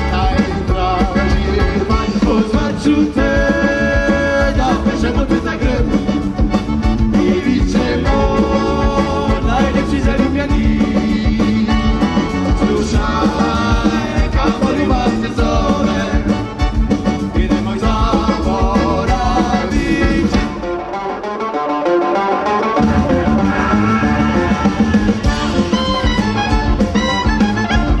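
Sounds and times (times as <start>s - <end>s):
man singing: 0.0s - 20.7s
drums: 0.0s - 28.0s
electric bass guitar: 0.0s - 28.0s.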